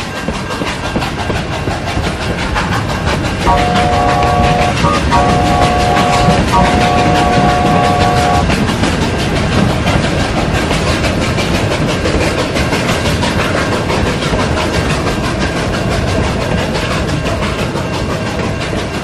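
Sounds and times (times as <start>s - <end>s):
rail joints clickety-clack: 0.0s - 19.0s
train wheels rumbling on rails: 0.0s - 19.0s
train whistle: 3.4s - 8.5s.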